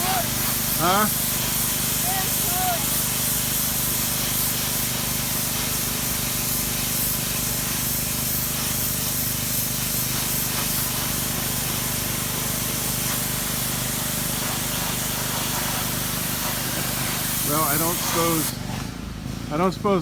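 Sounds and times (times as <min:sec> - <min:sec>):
pressure washer spray hissing: 0:00.0 - 0:18.8.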